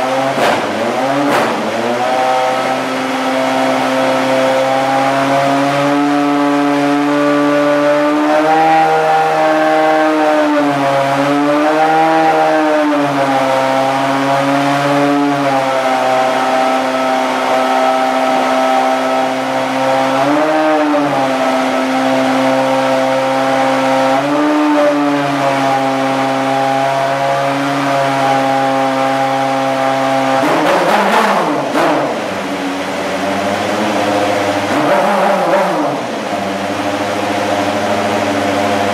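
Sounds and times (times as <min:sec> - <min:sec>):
race car engine idling: 0:30.4 - 0:38.9.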